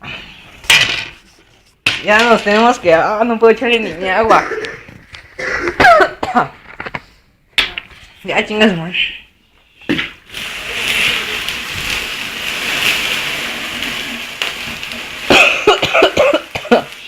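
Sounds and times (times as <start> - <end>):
person coughing: 4.3 - 6.6, 15.3 - 17.0
water hissing on fire: 9.6 - 17.0.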